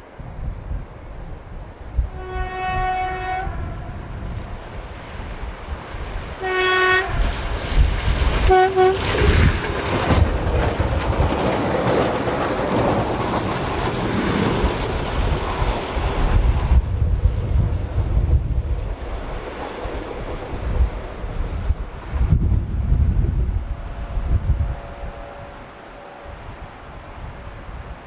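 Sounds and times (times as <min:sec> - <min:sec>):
train rumble and wheel clatter: 0:00.0 - 0:28.0
train horn: 0:02.0 - 0:04.2, 0:06.4 - 0:07.4, 0:08.4 - 0:09.5, 0:24.6 - 0:27.6.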